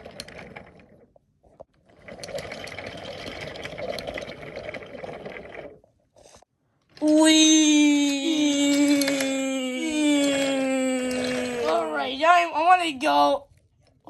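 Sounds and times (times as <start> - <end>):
toy train motor whirring: 8.0 - 12.0.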